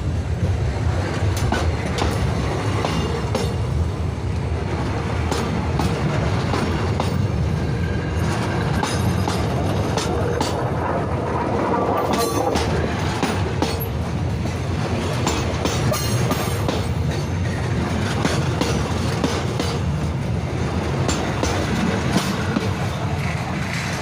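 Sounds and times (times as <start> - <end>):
train rumbling on rails: 0.0 - 24.0
wheels clicking over rail joints: 4.4 - 10.9, 11.7 - 24.0.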